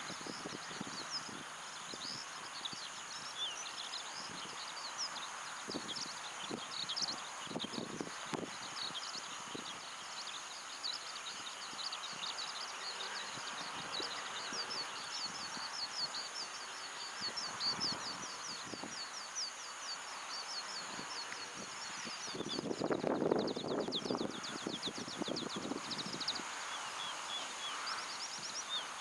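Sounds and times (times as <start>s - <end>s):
wind noise: 0.0s - 3.4s, 4.1s - 4.6s, 5.6s - 9.8s, 17.1s - 19.0s, 20.8s - 27.2s
wind buffeting microphone: 5.7s - 9.7s, 20.8s - 26.6s.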